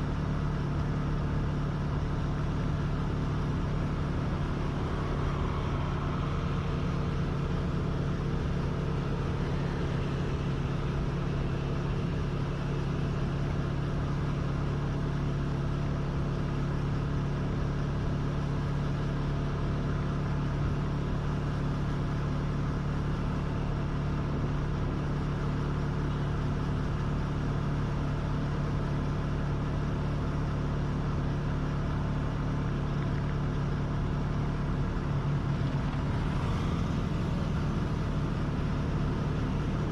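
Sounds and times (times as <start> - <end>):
vehicle engine running: 0.0 - 39.9
wind and road noise: 0.0 - 39.9.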